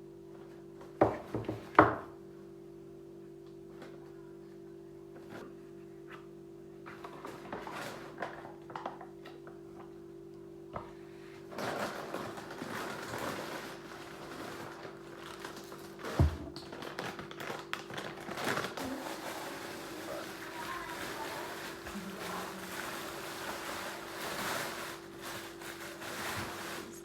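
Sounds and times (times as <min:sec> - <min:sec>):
low electrical hum: 0:00.0 - 0:27.0
rustling: 0:11.5 - 0:27.0.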